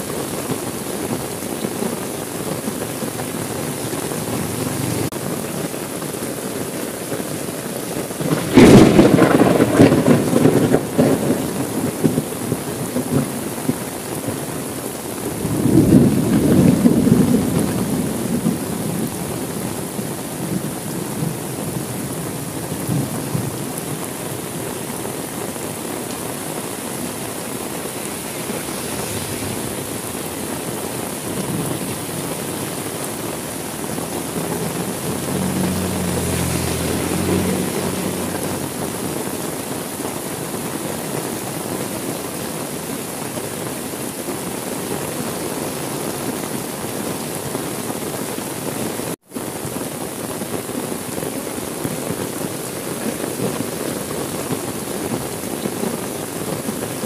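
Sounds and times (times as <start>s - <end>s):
heavy rain: 0.0s - 57.0s
thunder rumbling: 2.7s - 5.5s, 8.2s - 14.6s, 15.2s - 39.7s.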